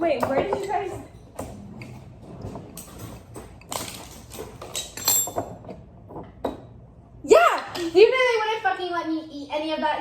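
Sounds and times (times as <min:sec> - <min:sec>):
objects knocking and clicking: 0:00.0 - 0:06.8.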